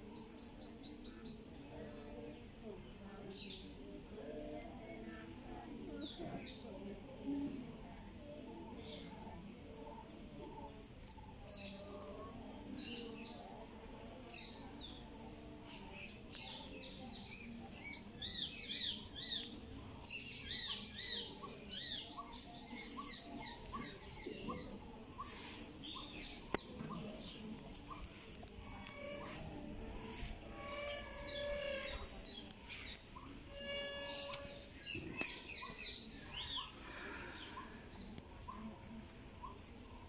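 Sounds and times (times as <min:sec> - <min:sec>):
birds chirping and calling: 0:16.0 - 0:38.7.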